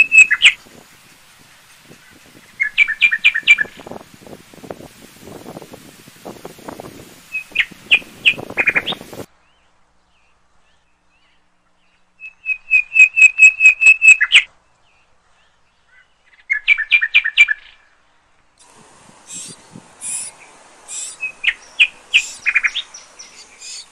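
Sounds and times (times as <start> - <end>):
high piping bird notes: 0.0 - 0.6, 1.9 - 4.0, 6.7 - 9.3, 12.2 - 14.5, 19.1 - 23.9
birds chirping: 0.0 - 1.2, 1.8 - 5.7, 6.5 - 23.9.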